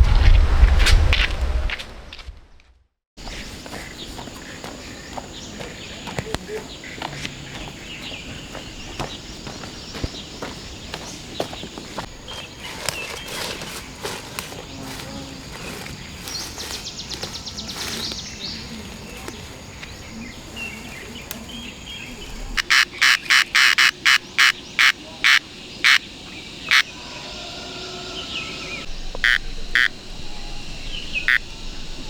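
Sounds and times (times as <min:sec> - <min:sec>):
bird calling sharp notes: 0:22.0 - 0:26.1, 0:31.0 - 0:31.5.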